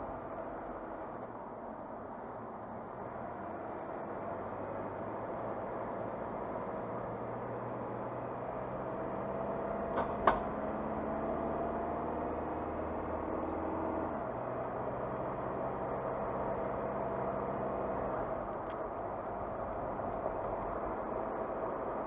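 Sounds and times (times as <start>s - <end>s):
car engine and road noise: 0.0s - 22.0s
sharp knocks: 10.0s - 10.5s.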